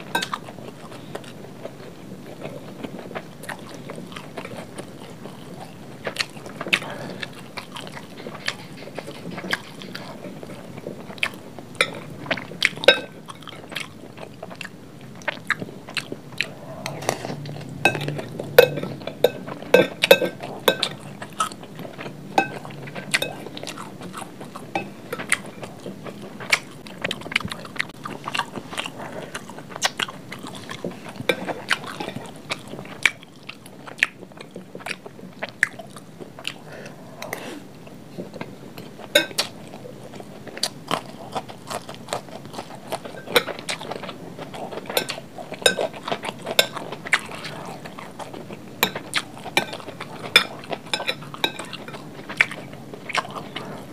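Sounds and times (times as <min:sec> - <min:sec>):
wet chewing with crunch: 0:00.0 - 0:53.9.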